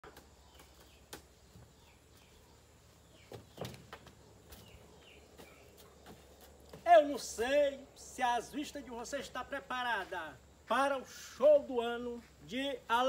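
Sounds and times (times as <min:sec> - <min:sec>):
faint bird chirps: 0:00.0 - 0:06.4.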